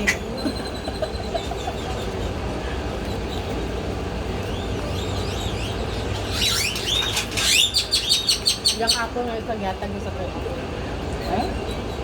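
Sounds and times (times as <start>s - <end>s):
birds chirping: 0.0s - 9.3s.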